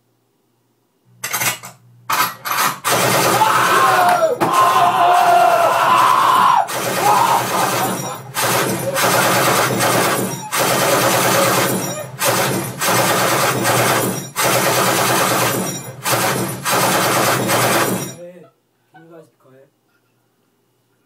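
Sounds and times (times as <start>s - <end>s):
machine-gun fire bursts: 2.1s - 4.0s, 6.6s - 18.2s.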